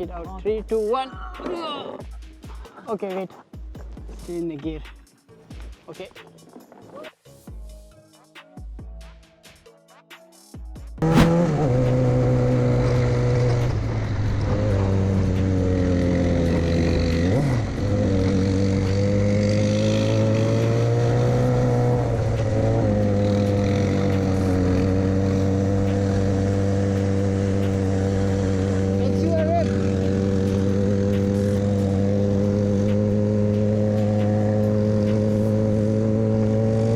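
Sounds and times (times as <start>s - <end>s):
engine running steadily: 11.0s - 36.9s.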